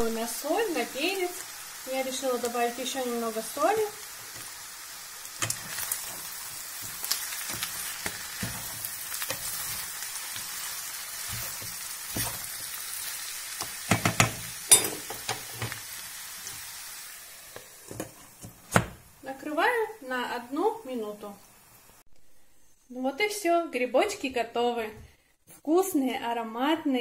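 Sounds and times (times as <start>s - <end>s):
vegetables sizzling in oil: 0.0s - 22.1s
spatula scraping and knocking pan: 5.4s - 12.8s, 13.6s - 15.8s, 17.5s - 19.0s.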